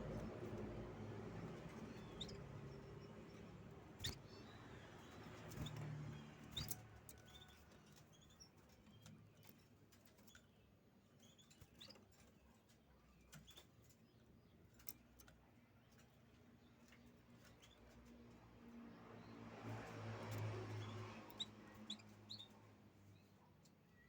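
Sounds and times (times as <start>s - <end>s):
canary chirping: 0.0s - 18.3s, 19.1s - 24.0s.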